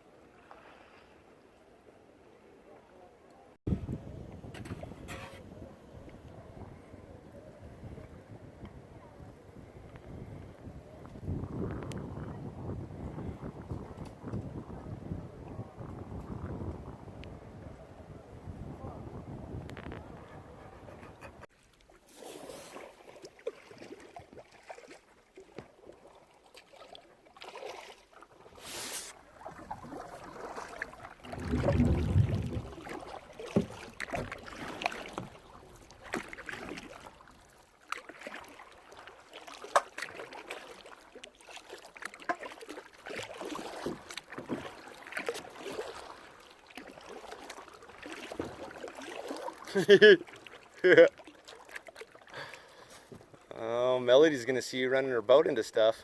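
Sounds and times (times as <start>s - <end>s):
paddle splashing in water: 3.7s - 9.4s, 19.7s - 53.6s
low rumble: 31.3s - 32.9s.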